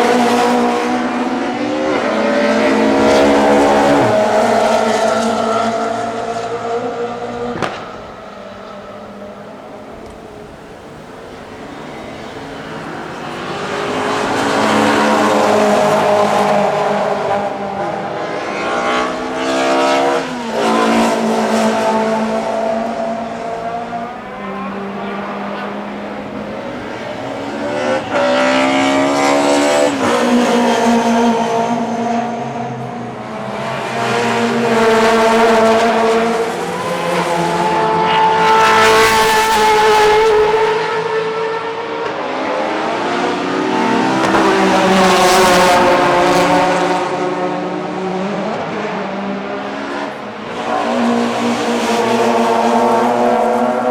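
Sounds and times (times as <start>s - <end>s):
race cars passing: 0.0s - 53.9s.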